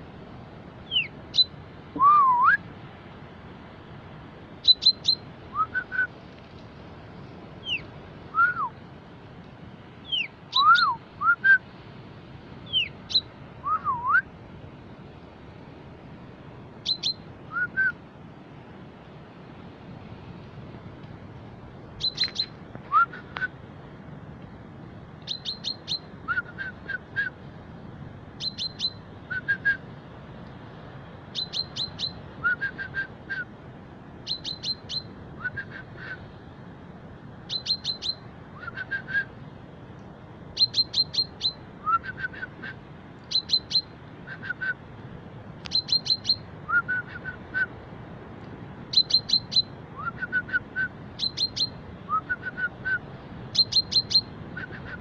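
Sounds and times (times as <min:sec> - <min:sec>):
chaffinch singing: 0:00.8 - 0:02.6, 0:04.6 - 0:06.1, 0:07.6 - 0:08.8, 0:10.0 - 0:11.6, 0:12.6 - 0:14.3, 0:16.8 - 0:18.0, 0:21.9 - 0:23.6, 0:25.2 - 0:27.4, 0:28.3 - 0:29.8, 0:31.3 - 0:33.5, 0:34.2 - 0:36.3, 0:37.4 - 0:39.4, 0:40.5 - 0:44.8, 0:45.6 - 0:47.6, 0:48.8 - 0:55.0.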